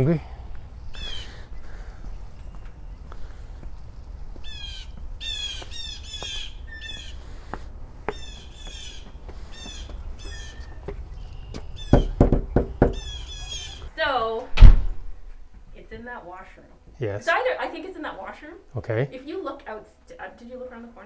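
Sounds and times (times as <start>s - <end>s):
jays giving harsh calls: 0.9s - 2.1s, 4.4s - 7.5s, 8.1s - 13.9s
loud knock: 11.9s - 13.0s.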